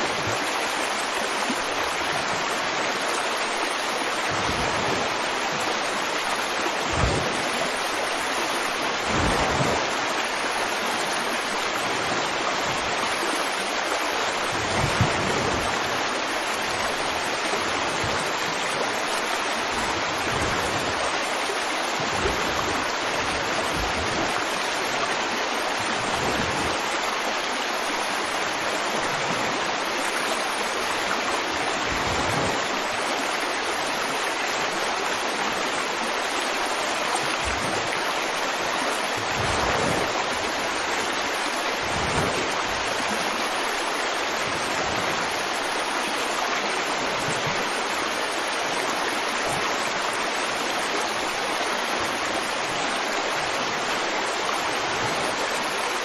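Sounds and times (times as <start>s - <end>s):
river flowing over rocks: 0.0s - 56.0s
low thumps or gurgles: 6.8s - 7.5s, 9.0s - 9.9s, 14.5s - 15.9s, 39.2s - 40.3s, 41.8s - 42.6s.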